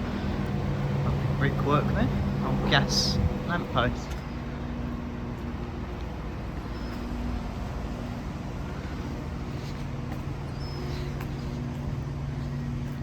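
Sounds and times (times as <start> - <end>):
diesel train engine idling: 0.0 - 13.0.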